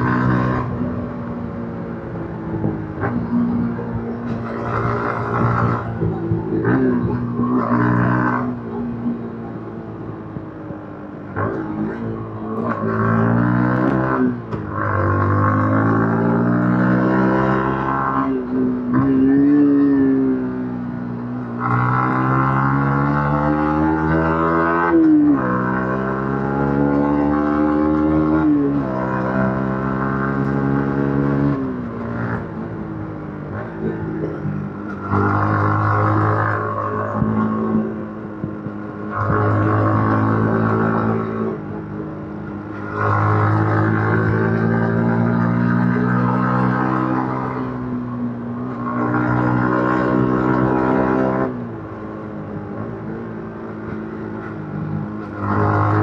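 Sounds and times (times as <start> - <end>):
motorcycle engine running: 0.0 - 23.4
motorcycle engine accelerating: 0.0 - 56.0.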